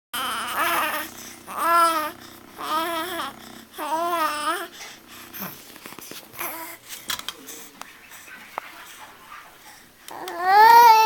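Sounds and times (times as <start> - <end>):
baby babbling: 0.2 - 4.7, 6.4 - 6.8, 10.1 - 11.0.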